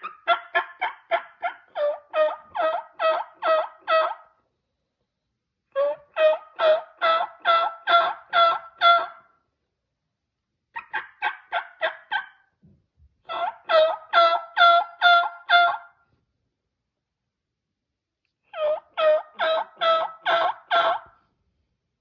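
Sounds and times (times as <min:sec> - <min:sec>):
turkey yelping: 0:00.0 - 0:04.4, 0:05.7 - 0:09.3, 0:10.8 - 0:12.5, 0:13.3 - 0:16.0, 0:18.5 - 0:21.2.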